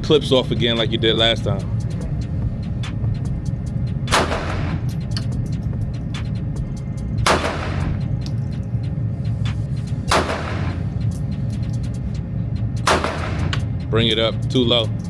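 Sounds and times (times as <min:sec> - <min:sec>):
low rumble: 0:00.0 - 0:15.0
pistol shots: 0:04.1 - 0:04.9, 0:07.2 - 0:08.0, 0:10.1 - 0:10.9, 0:12.8 - 0:13.7.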